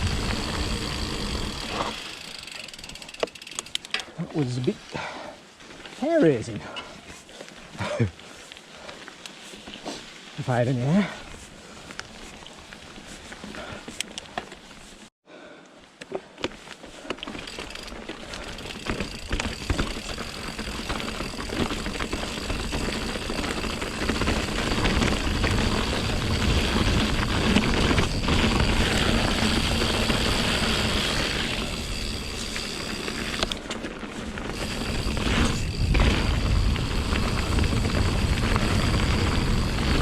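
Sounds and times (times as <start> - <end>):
bike knocking and rattling: 0.0 - 4.7, 16.0 - 40.0
bike tyres rolling: 0.0 - 15.1, 15.9 - 40.0.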